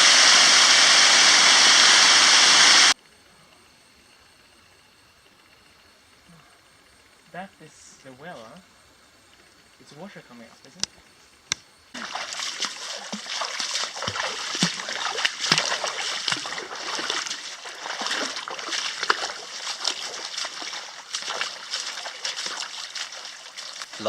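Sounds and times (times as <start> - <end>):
water splashing: 11.9 - 24.0.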